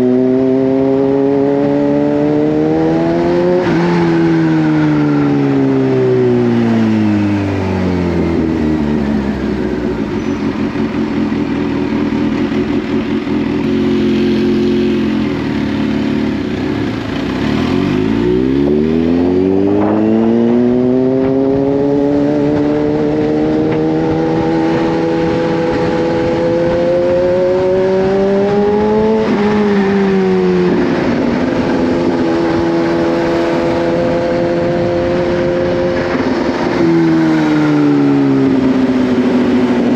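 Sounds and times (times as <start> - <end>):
motorcycle engine: 0.0 - 39.9
wind noise: 18.0 - 39.9.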